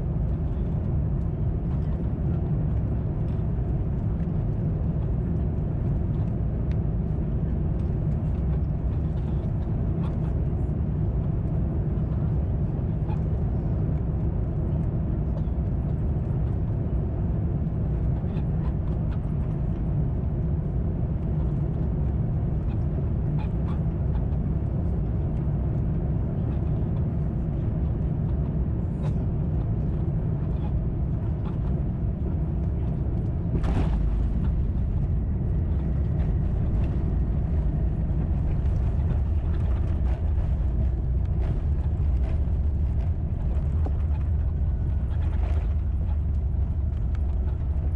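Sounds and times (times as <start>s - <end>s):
airliner cabin rumble: 0.0s - 47.9s.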